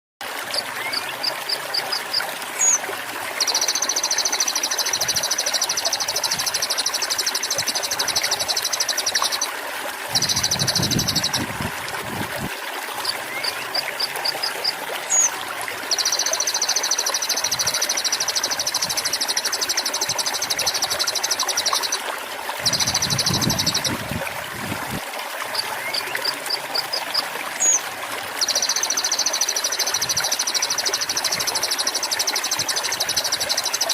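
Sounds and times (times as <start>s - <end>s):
trickling water: 0.2s - 33.9s
bird song with high trills: 2.6s - 2.8s, 3.4s - 9.5s, 10.1s - 11.5s, 15.1s - 15.3s, 15.9s - 22.0s, 22.6s - 24.0s, 27.6s - 27.8s, 28.4s - 33.9s.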